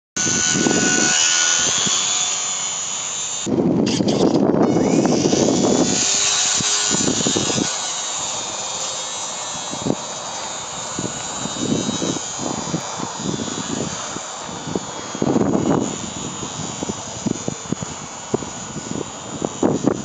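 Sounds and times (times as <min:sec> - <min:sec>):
electric model plane motor whining: 0:00.2 - 0:20.0
wind buffeting microphone: 0:00.2 - 0:20.0.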